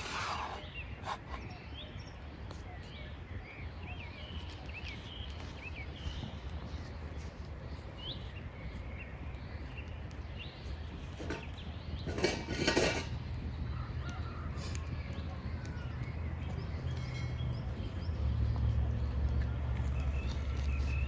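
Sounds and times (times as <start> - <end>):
birds chirping: 0.0 - 21.0
metallic clatter of cookware: 11.2 - 13.2.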